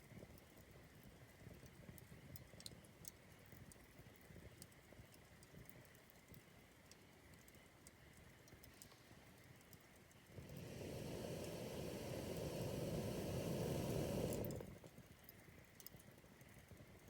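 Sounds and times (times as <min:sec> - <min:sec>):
campfire crackling and popping: 0:09.4 - 0:17.0.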